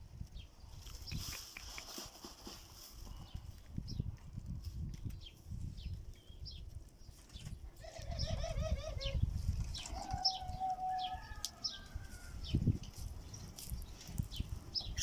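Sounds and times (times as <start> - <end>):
birds chirping and calling: 0.4 - 2.0, 5.1 - 15.0.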